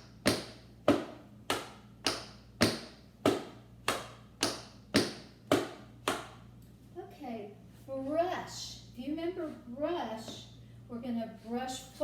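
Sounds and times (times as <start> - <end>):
tap shoes striking floor: 0.2 - 6.3.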